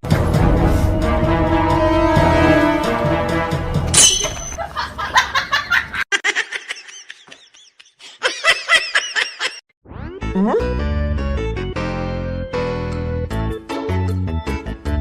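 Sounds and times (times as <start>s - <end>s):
background music: 0.0s - 4.6s, 10.2s - 15.0s
people laughing: 4.6s - 9.6s.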